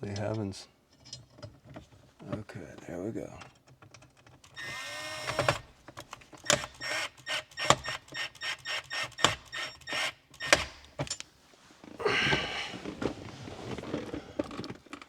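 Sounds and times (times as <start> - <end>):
hand tools clicking and knocking: 0.0 - 11.3.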